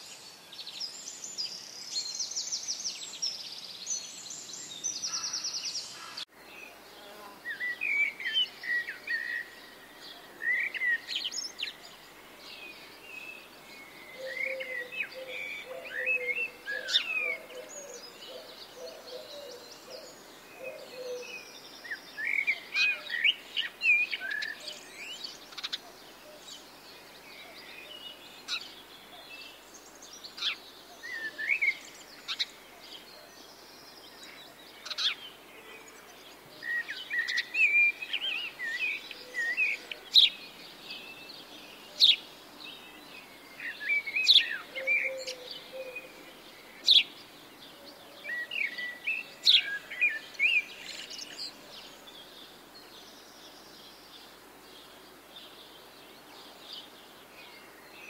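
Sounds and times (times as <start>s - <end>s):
faint steady hiss: 0.0s - 58.0s
birds chirping and whistling: 13.8s - 25.7s, 43.3s - 47.2s.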